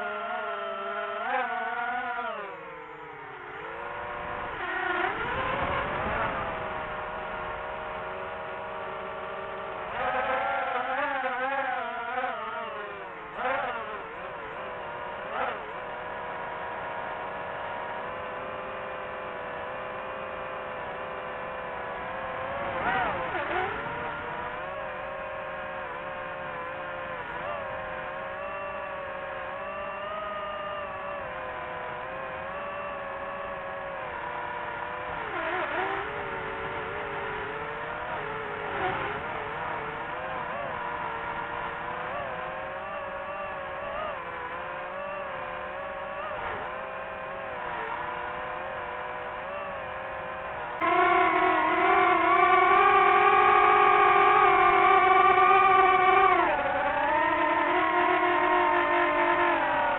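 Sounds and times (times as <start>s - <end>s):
drone propellers whining: 0.0s - 59.9s.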